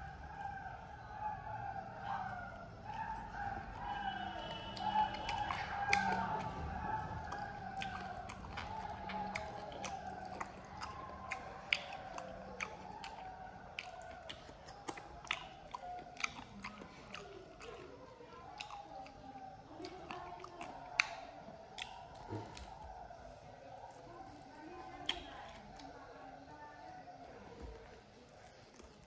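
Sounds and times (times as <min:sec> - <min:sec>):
person chewing chicken feet: 0:02.0 - 0:23.0.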